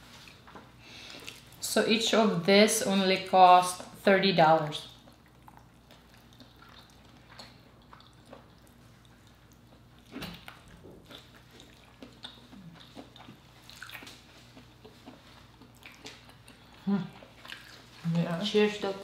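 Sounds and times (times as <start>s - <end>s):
low steady hum: 0.0s - 19.0s
wet chewing mouth sounds: 0.3s - 1.6s, 4.9s - 18.1s.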